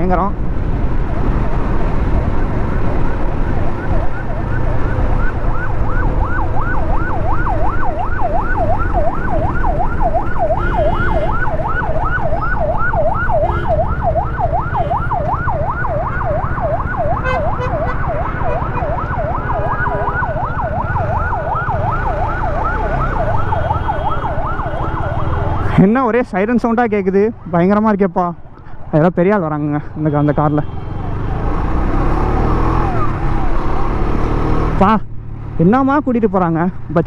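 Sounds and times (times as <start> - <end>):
wind and road noise: 0.0 - 37.0
yelp siren: 3.3 - 26.2, 30.2 - 34.0.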